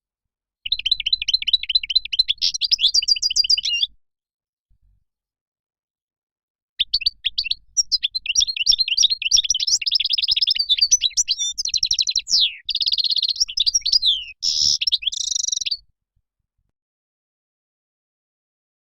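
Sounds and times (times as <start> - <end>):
goldfinch twittering song: 0.7 - 3.9, 6.8 - 15.8.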